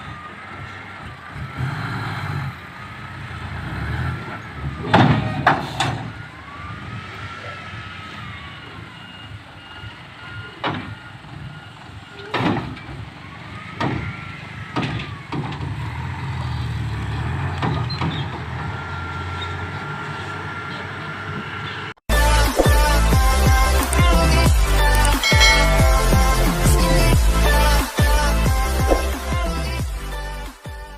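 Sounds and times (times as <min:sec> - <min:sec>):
diesel truck engine rumble: 0:00.0 - 0:30.9
rising and falling squeals: 0:00.0 - 0:30.9
music: 0:22.1 - 0:30.9.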